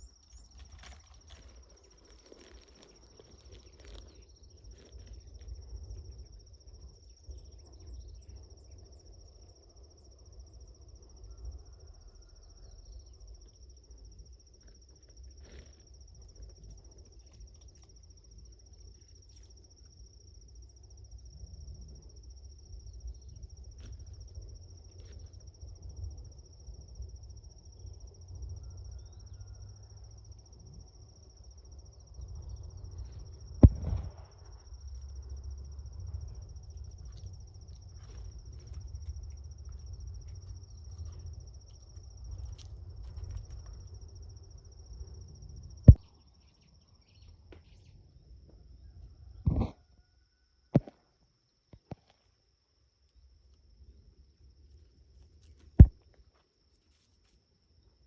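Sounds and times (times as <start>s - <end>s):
faint clicks and rustles: 0.0s - 6.2s
crickets trilling: 0.0s - 58.0s.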